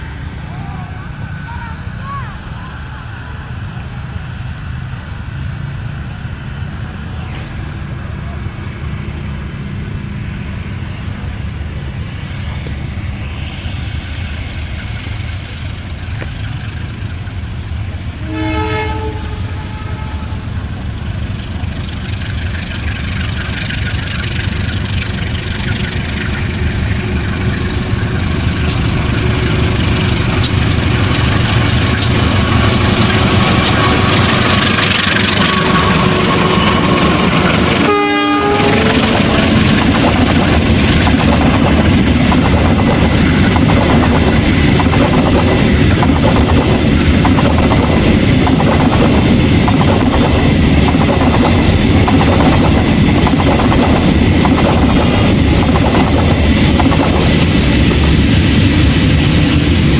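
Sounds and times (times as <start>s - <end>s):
diesel locomotive engine: 0.0s - 59.9s
train horn blasts: 18.2s - 20.5s, 37.8s - 39.3s.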